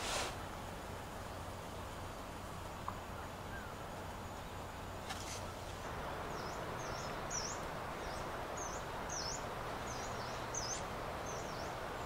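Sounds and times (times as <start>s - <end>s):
steady outdoor hiss: 0.0s - 12.0s
small bird chirping: 5.2s - 12.0s.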